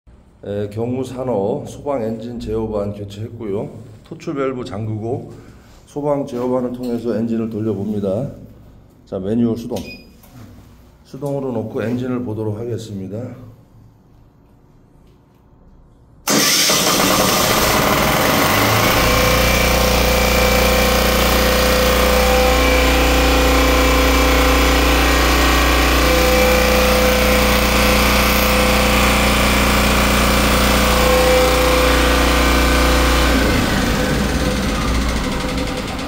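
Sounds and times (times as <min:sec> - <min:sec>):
pump engine running loudly: 0:16.3 - 0:36.0.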